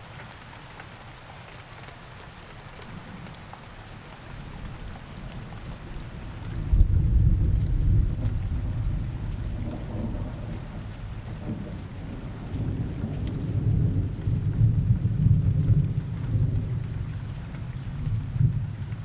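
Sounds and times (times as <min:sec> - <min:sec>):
rain: 0:00.0 - 0:19.0
low rolling thunder: 0:05.3 - 0:19.0.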